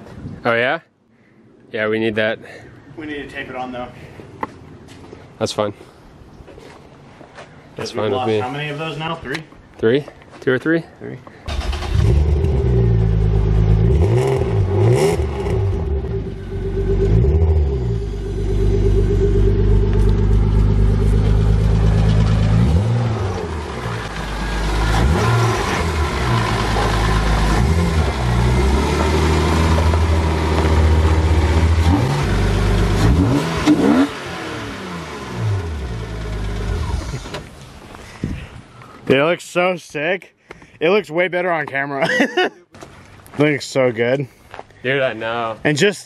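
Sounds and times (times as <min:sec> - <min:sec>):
car engine revving: 0:11.5 - 0:37.3.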